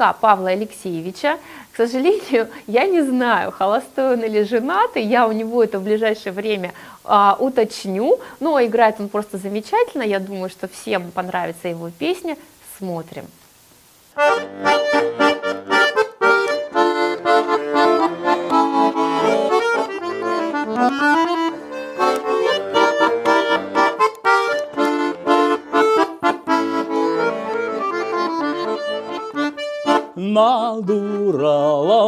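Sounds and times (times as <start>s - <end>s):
button accordion melody: 14.2s - 31.3s.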